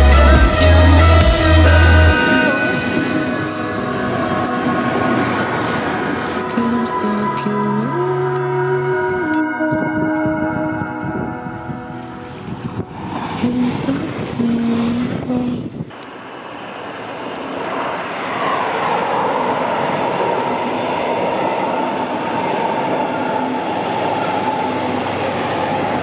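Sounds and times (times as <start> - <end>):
diesel railcar passing: 0.0 - 9.6, 10.6 - 26.0
high whine: 0.0 - 26.0
train wheel and rail noise: 1.9 - 26.0.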